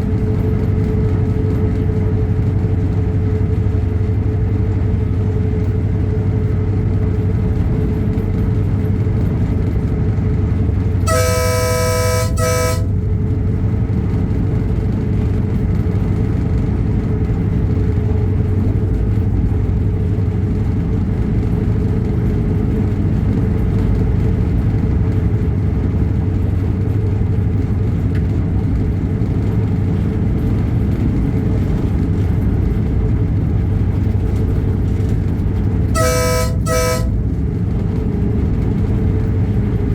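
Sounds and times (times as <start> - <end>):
diesel train engine running: 0.0 - 39.9
two-note train horn: 11.1 - 13.2, 36.0 - 37.5.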